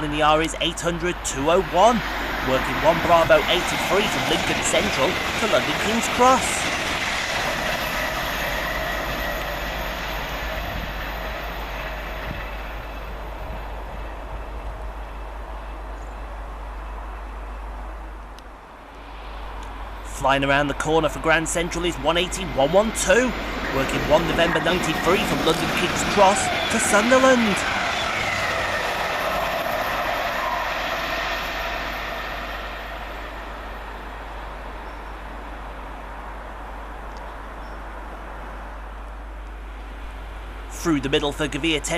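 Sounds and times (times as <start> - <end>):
train passing: 0.0 - 41.9
falling whine: 21.5 - 34.2.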